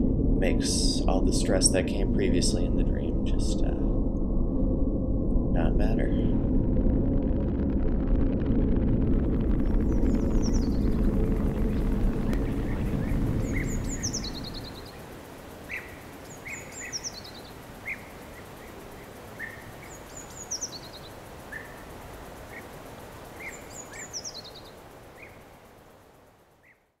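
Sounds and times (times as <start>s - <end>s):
outdoor background hiss: 0.0s - 4.0s, 9.3s - 27.0s
low rumble: 0.0s - 15.8s
songbird chirping: 9.6s - 27.0s.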